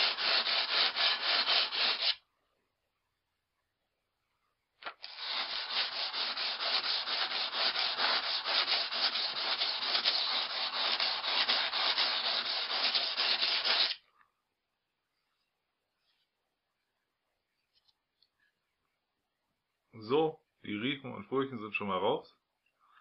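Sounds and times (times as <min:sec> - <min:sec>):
axe scraping on sandpaper: 0:00.0 - 0:02.2, 0:05.0 - 0:14.0.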